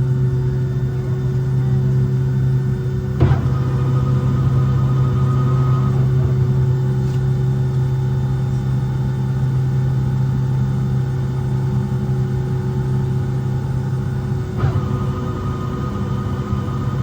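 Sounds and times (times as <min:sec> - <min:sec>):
jet engines humming in cabin: 0:00.0 - 0:17.0.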